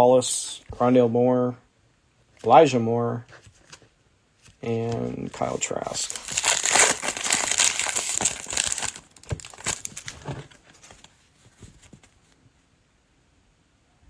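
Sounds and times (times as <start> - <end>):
plastic wrapper crinkling: 5.4 - 11.1.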